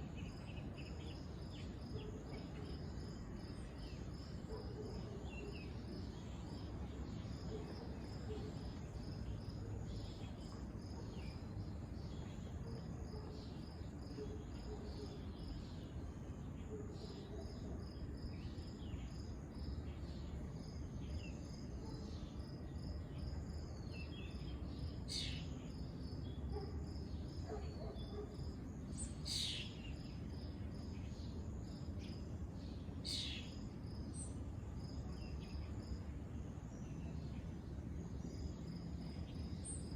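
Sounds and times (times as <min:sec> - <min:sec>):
crickets chirping: 0:00.0 - 0:39.9
sharp insect calls: 0:17.0 - 0:36.1.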